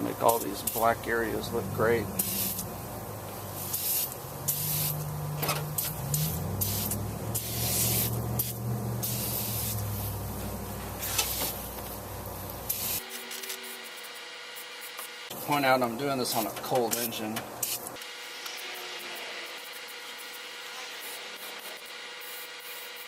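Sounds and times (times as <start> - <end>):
aerosol can spraying bursts: 2.2 - 2.7, 3.5 - 5.1, 5.7 - 10.2, 11.0 - 11.8, 12.6 - 15.1, 16.4 - 18.8, 19.4 - 23.0.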